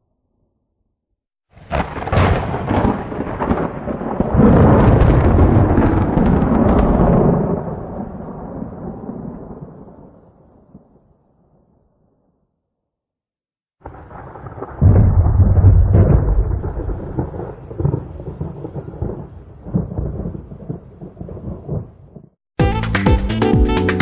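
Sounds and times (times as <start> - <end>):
thunder crack and rumble: 1.6 - 11.2, 13.8 - 22.4.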